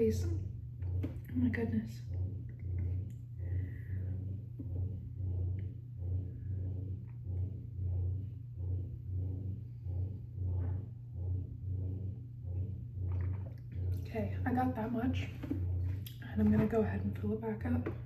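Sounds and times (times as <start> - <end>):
person gulping water: 13.0 - 14.1, 15.4 - 16.2.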